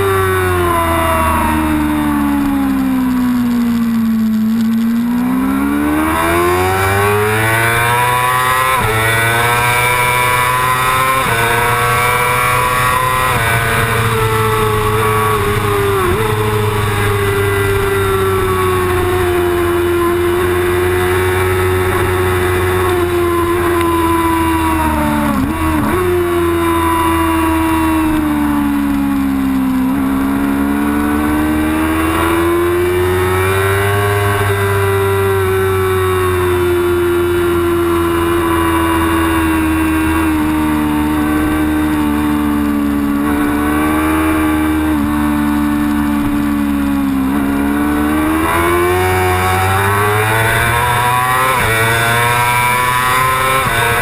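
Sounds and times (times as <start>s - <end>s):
race engine accelerating: 0.0s - 54.0s
wind rush over microphone: 3.4s - 28.8s.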